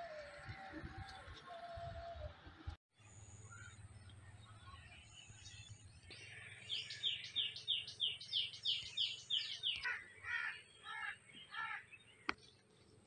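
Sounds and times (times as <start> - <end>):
songbird chirping: 3.0 - 13.0.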